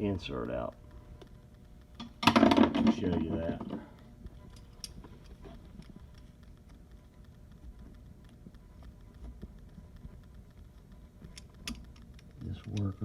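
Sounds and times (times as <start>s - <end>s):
hand tool clicking and scraping metal: 11.3s - 13.0s.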